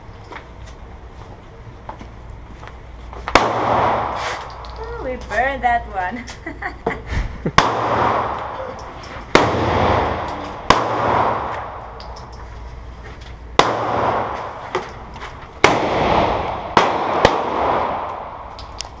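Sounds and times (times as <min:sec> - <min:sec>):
gunshots with long echo: 0:03.3 - 0:04.4, 0:07.5 - 0:08.6, 0:09.3 - 0:12.0, 0:13.6 - 0:14.6, 0:15.6 - 0:18.5.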